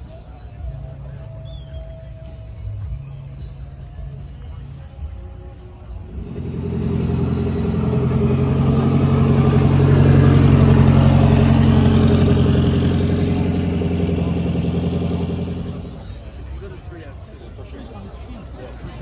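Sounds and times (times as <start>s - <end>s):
car passing slowly: 6.1s - 16.2s.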